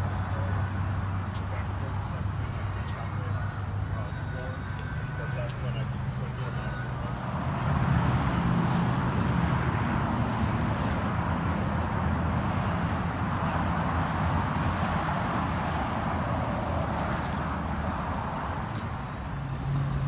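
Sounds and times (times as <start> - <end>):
car engine running: 18.9 - 20.0.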